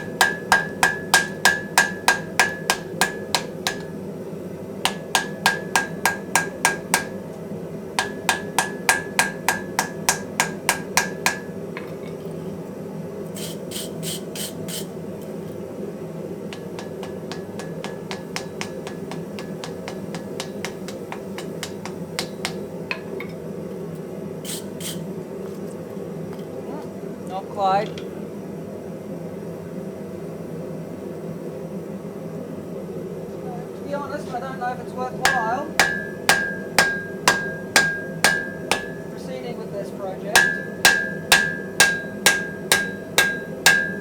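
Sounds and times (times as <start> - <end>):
hammer striking iron on anvil: 0.0 - 4.1, 4.8 - 7.3, 8.0 - 11.9, 16.5 - 23.2, 35.2 - 39.2, 40.3 - 44.0
steady low hum: 0.0 - 11.8, 15.4 - 23.6, 32.7 - 44.0.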